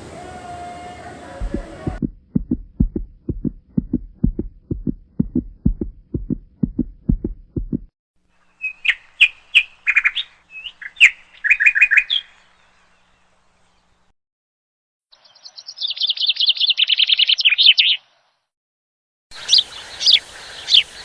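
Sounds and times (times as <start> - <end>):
low rhythmic thumps: 1.4 - 7.9
bird chirping: 8.4 - 14.0, 15.1 - 18.4.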